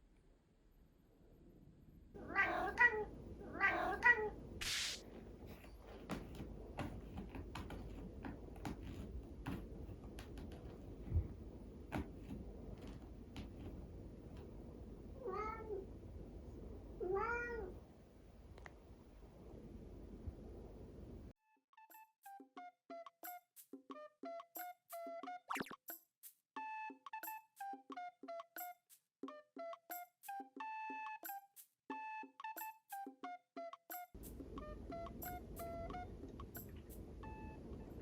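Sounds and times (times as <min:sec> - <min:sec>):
cat meowing: 0:02.2 - 0:04.4, 0:15.2 - 0:15.9, 0:17.0 - 0:17.8
cat hissing: 0:02.2 - 0:05.6
faint taps and clicks: 0:05.1 - 0:14.6.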